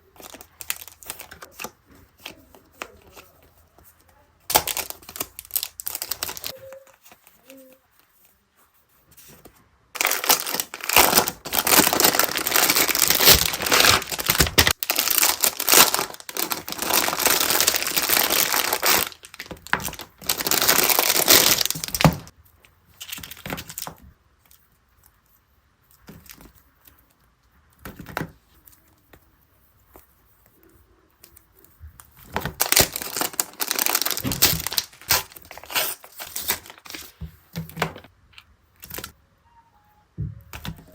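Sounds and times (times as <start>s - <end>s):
packaging crinkling: 0.0s - 3.3s, 4.5s - 7.8s, 10.0s - 22.3s, 32.2s - 39.2s.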